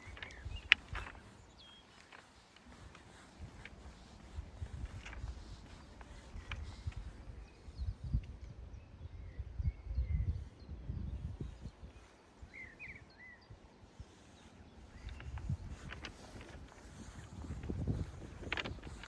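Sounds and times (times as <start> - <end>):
wind buffeting microphone: 0.0 - 19.0
faint bird chirps: 6.6 - 15.4.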